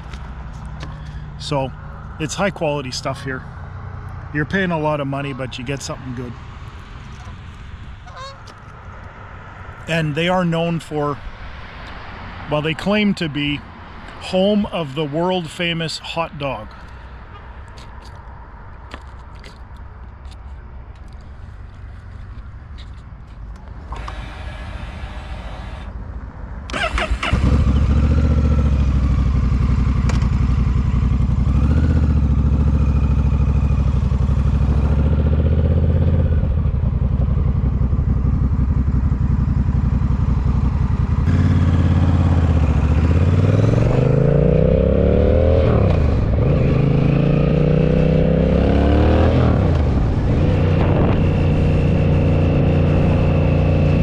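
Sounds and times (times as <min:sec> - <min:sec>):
motorcycle engine starting and revving: 0:23.6 - 0:25.9, 0:26.7 - 0:54.0.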